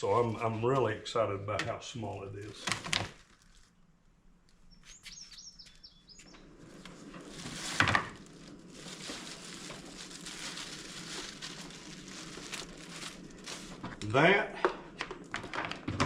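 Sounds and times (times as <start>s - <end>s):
rustling of handled parts: 2.6s - 3.8s, 6.5s - 14.0s
bird chirping high notes: 4.7s - 6.5s.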